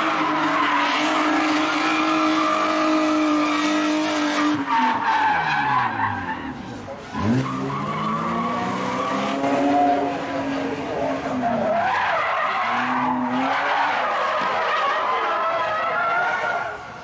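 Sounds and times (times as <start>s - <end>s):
car engine revving: 0.0s - 15.7s
tyres skidding and squealing: 0.0s - 17.0s.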